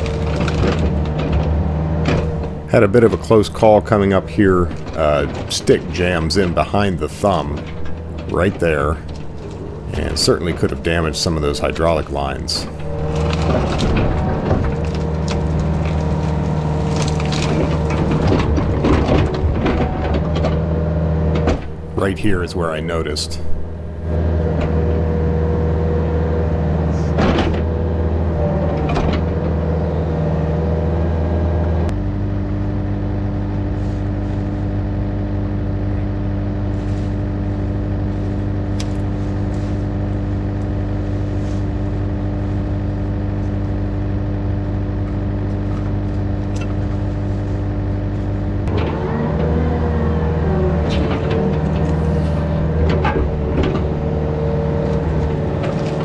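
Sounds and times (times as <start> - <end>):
excavator diesel engine running: 2.2 - 14.2, 21.6 - 24.2.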